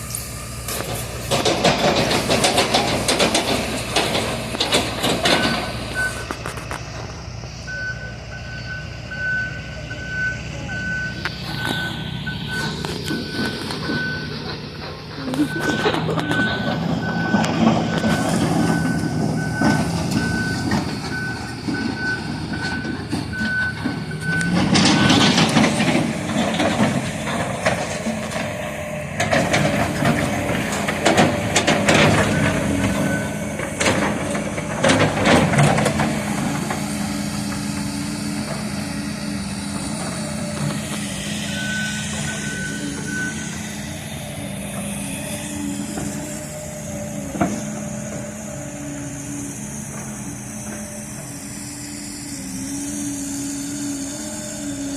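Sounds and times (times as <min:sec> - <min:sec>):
excavator engines under load: 0:00.0 - 0:54.9
travel alarm beeping: 0:05.2 - 0:06.4, 0:07.6 - 0:14.5, 0:15.4 - 0:25.8, 0:32.1 - 0:33.6, 0:38.2 - 0:44.4.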